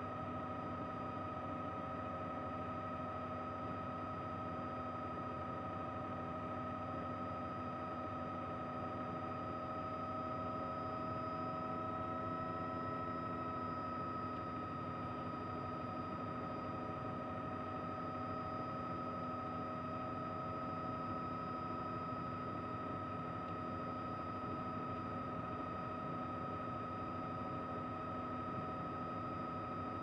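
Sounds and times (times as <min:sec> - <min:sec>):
helicopter in flight: 0:00.0 - 0:30.0.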